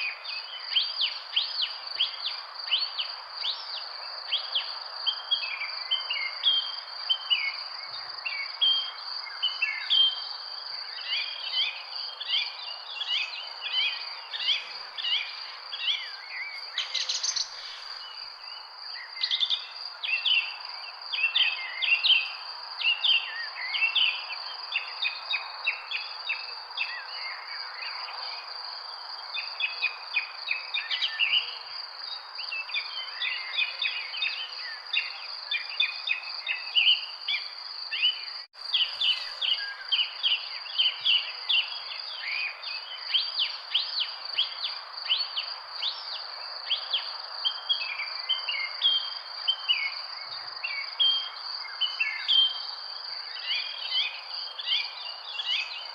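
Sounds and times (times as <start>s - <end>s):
background hiss: 0.0s - 26.8s, 37.6s - 49.3s
insects trilling: 0.0s - 55.9s
birds chirping: 12.3s - 19.9s.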